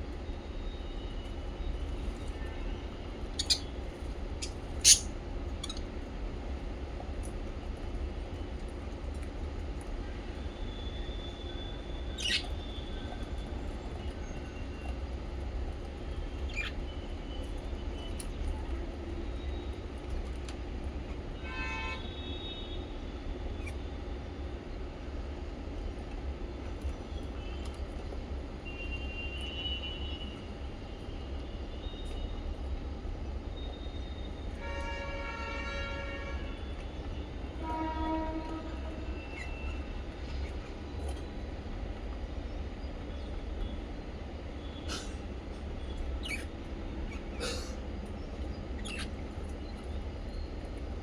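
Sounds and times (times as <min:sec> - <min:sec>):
budgies chirping: 0:03.4 - 0:05.9, 0:12.1 - 0:13.3, 0:16.4 - 0:16.8, 0:45.9 - 0:47.4, 0:48.4 - 0:50.4.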